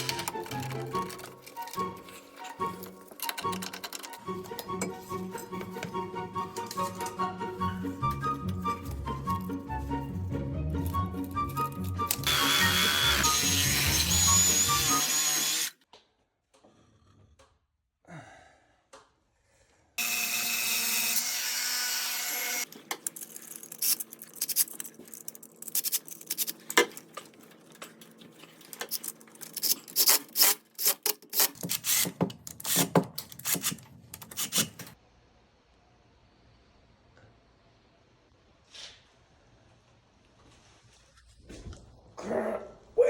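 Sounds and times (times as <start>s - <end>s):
power tool running: 12.0s - 15.8s, 20.0s - 22.7s.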